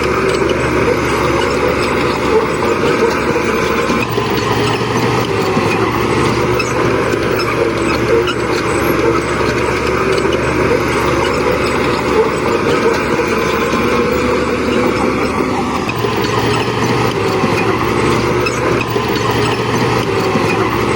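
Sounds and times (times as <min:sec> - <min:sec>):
heavy machine diesel engines: 0:00.0 - 0:20.9.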